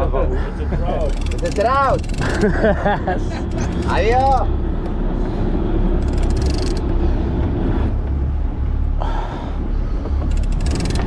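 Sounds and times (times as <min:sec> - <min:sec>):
boat engine droning: 0:00.0 - 0:11.0
rapid ticking: 0:00.7 - 0:02.7, 0:03.4 - 0:04.6, 0:06.0 - 0:07.0, 0:10.2 - 0:11.0.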